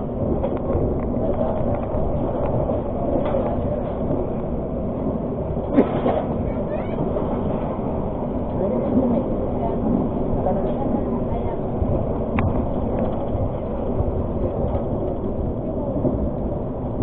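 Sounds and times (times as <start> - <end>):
train rumbling from inside: 0.0 - 17.0.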